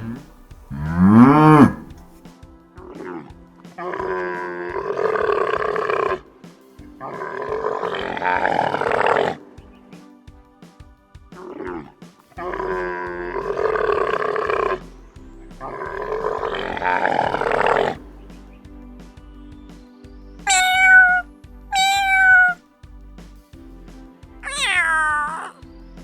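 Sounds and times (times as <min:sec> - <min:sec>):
tiger roars: 0:00.0 - 0:02.0
soft background music: 0:00.0 - 0:26.0
cat meowing: 0:20.5 - 0:21.2, 0:21.8 - 0:22.6.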